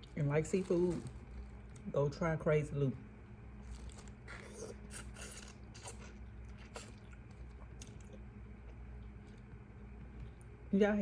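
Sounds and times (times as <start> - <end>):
low steady hum: 0.0 - 11.0
chewing and mouth sounds: 3.6 - 10.6.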